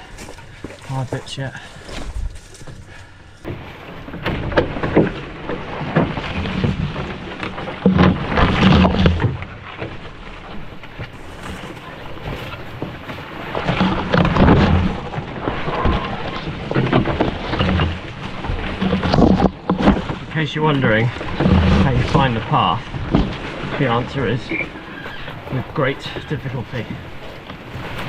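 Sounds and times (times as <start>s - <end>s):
footsteps on trail: 0.0s - 3.5s, 11.0s - 13.5s
brush rustling against load: 0.0s - 15.6s, 16.3s - 28.0s.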